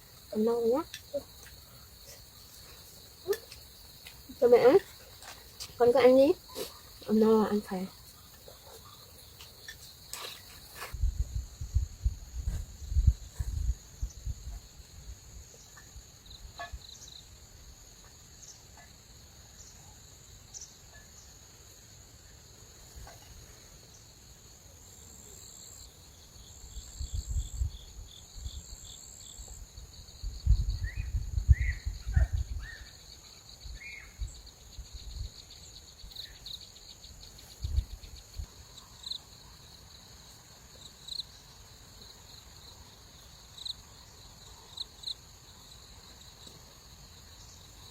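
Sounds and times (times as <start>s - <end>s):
insects chirping in a trill: 0.0s - 47.9s.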